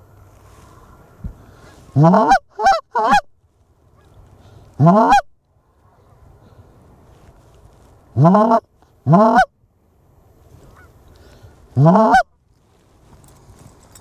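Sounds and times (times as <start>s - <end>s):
goose call honking: 1.6s - 3.3s, 4.8s - 6.1s, 8.2s - 9.5s, 11.8s - 12.3s
goose call clucks: 1.9s - 3.3s, 4.8s - 5.3s, 8.2s - 9.5s, 11.8s - 12.3s.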